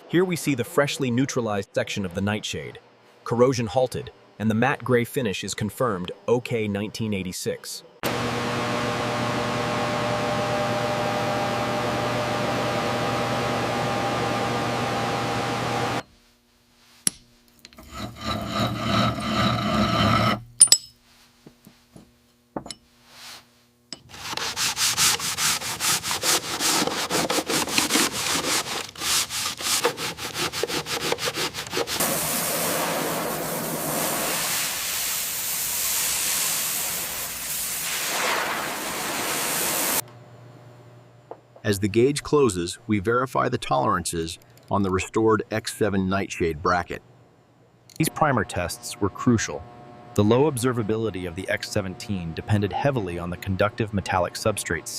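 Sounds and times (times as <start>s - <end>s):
short rubbing strokes: 23.0s - 33.1s
abrasive sanding hiss: 31.9s - 40.0s
steady hum: 40.0s - 54.9s.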